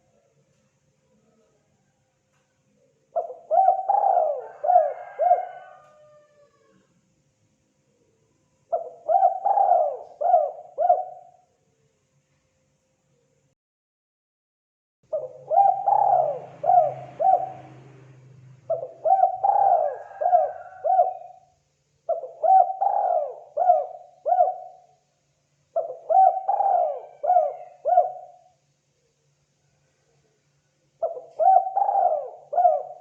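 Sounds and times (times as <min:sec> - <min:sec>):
dove cooing: 0:03.1 - 0:06.8, 0:08.7 - 0:11.4, 0:15.1 - 0:21.5, 0:22.1 - 0:25.0, 0:25.8 - 0:28.6, 0:31.0 - 0:33.0.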